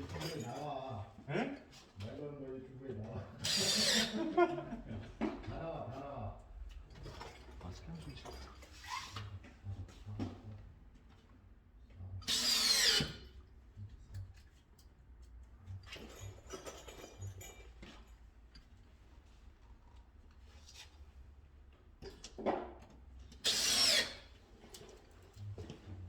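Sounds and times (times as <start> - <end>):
cordless screwdriver driving screw: 23.4 - 24.2.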